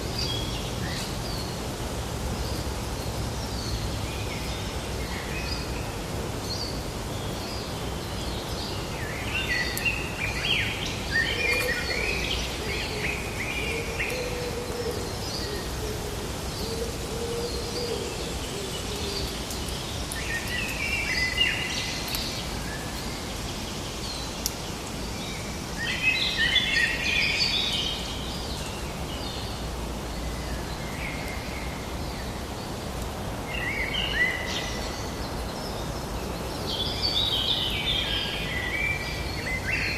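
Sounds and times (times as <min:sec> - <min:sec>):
background hiss: 0:00.0 - 0:39.9.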